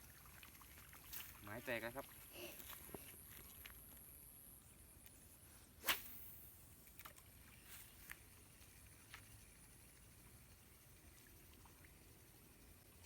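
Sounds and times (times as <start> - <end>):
fishing rod swish: 5.8 - 6.3.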